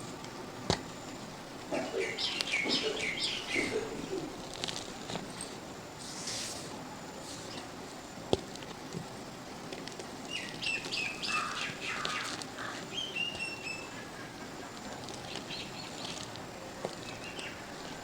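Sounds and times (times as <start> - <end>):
faint steady hiss: 0.0 - 18.0
birds chirping: 1.4 - 5.1, 10.2 - 18.0.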